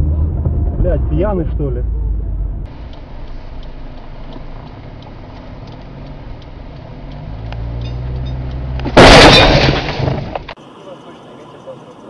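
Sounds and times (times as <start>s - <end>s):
car engine hum: 0.0s - 10.7s
road noise: 0.0s - 12.0s
faint light ticks: 2.9s - 7.7s.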